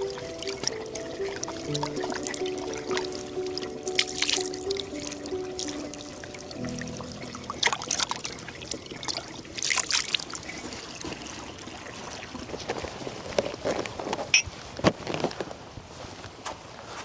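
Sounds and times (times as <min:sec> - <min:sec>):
low musical note: 0:00.0 - 0:09.4
water trickling: 0:00.0 - 0:14.1.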